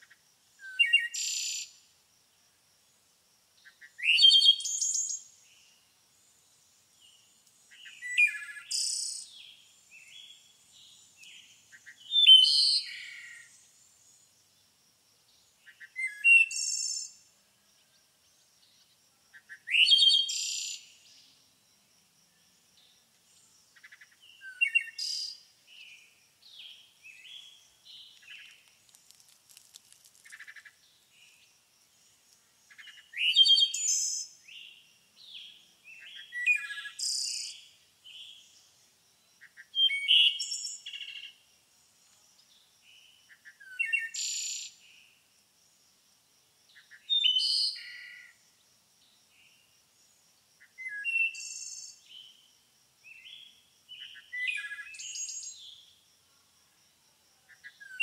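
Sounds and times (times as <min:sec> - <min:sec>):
soft bird chirps: 0:03.6 - 0:14.3, 0:22.3 - 0:38.8, 0:53.1 - 0:55.8
birds singing: 0:07.0 - 0:14.2, 0:22.8 - 0:28.6, 0:32.7 - 0:38.7.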